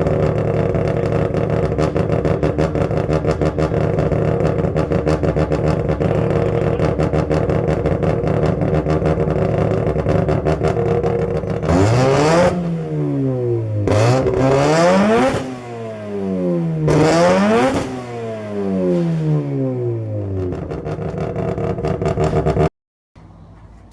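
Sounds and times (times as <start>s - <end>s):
rotary engine idling and revving: 0.0s - 22.7s.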